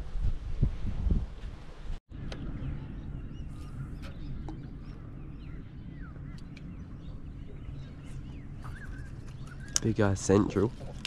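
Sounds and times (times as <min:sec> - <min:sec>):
low steady rumble: 0:00.0 - 0:11.0
birds chirping and squawking: 0:02.4 - 0:11.0.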